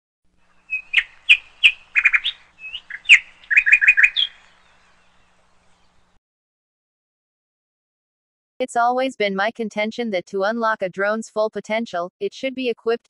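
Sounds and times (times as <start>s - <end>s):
bird chirps and tweets: 0.4s - 6.2s.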